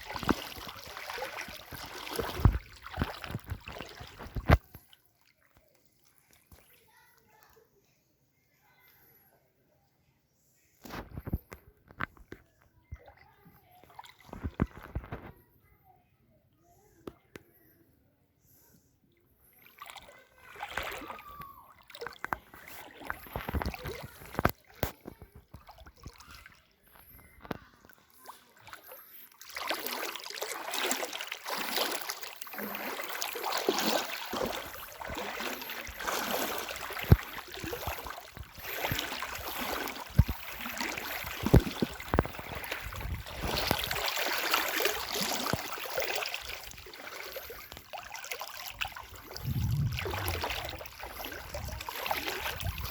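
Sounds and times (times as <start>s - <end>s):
floodwater sloshing and splashing: 0.0s - 7.5s, 12.9s - 15.3s, 19.4s - 52.9s.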